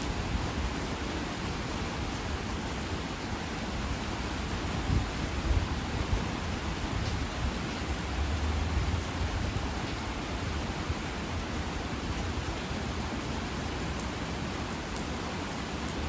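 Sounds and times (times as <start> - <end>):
heavy rain hiss: 0.0 - 16.0.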